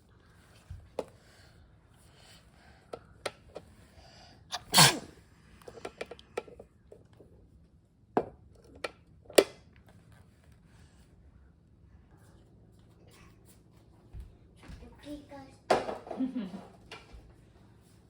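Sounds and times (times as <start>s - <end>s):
person sneezing: 4.5s - 5.1s.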